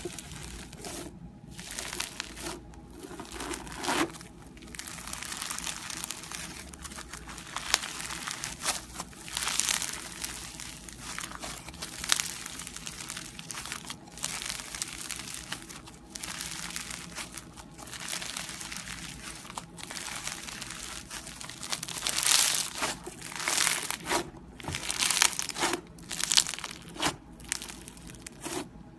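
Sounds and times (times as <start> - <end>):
slime squelching by hand: 0.0 - 28.8.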